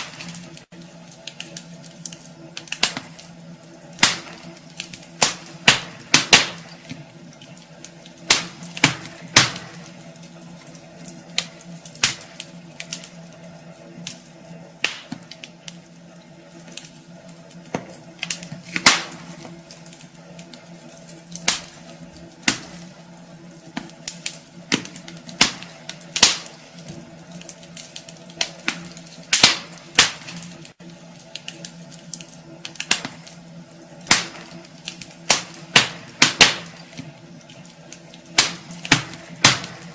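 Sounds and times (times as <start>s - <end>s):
wood fire crackling: 0.0s - 39.9s
sharp pops from logs: 4.0s - 7.0s, 8.3s - 9.9s, 14.8s - 15.3s, 17.7s - 19.4s, 23.7s - 26.6s, 28.0s - 30.6s, 34.1s - 37.1s, 38.4s - 39.9s.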